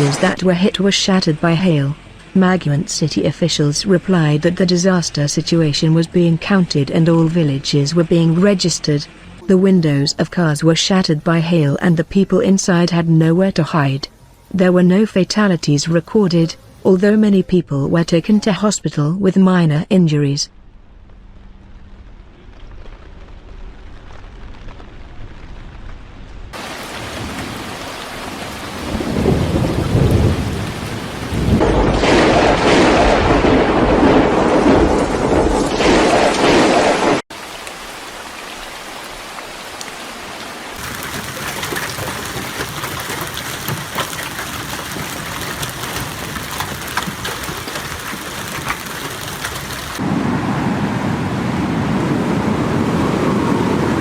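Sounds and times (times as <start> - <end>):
hail and heavy rain pelting: 26.6 - 35.4, 40.7 - 50.1.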